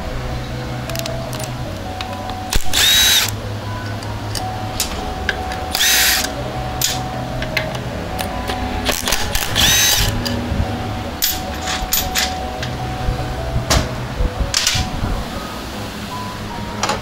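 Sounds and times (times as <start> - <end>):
handheld power tool running: 2.5 - 3.3, 5.7 - 6.3, 8.9 - 10.2
tools clicking on metal: 4.0 - 10.4.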